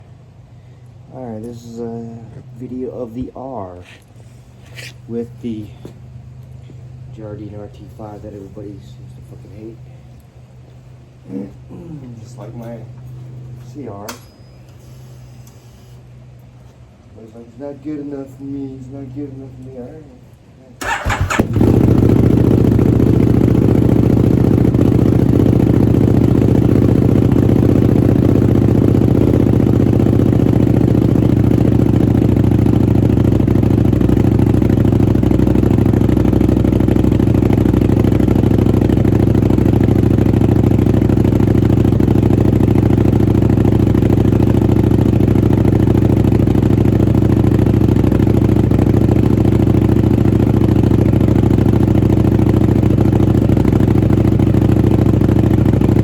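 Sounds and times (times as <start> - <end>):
motorcycle engine idling: 0.0 - 15.4, 20.8 - 56.0.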